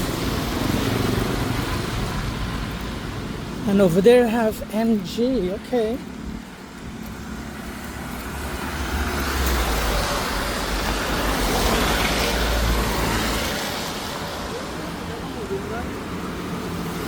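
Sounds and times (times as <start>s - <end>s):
vehicle passing close by: 7.1s - 17.0s.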